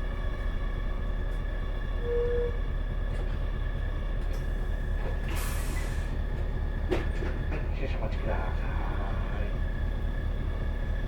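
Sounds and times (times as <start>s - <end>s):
bus engine idling: 0.0s - 11.0s
short tone: 2.0s - 2.6s.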